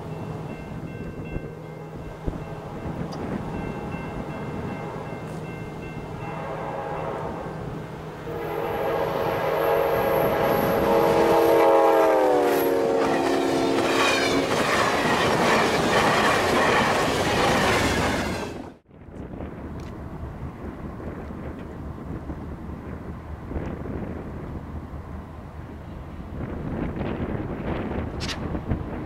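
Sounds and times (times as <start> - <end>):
locomotive multi-note horn: 6.1 - 14.6.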